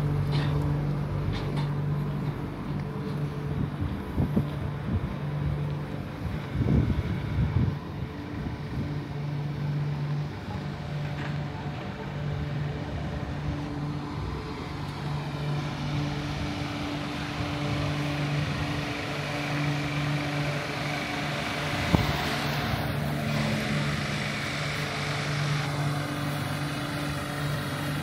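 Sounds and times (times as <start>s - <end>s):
train machinery low hum: 0.0s - 28.0s.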